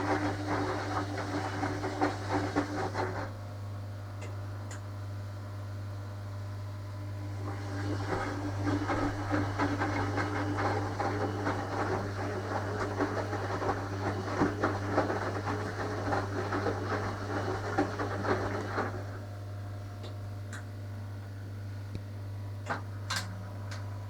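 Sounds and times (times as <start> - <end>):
washing machine motor hum: 0.0 - 24.0
laundry and water sloshing: 7.8 - 19.1.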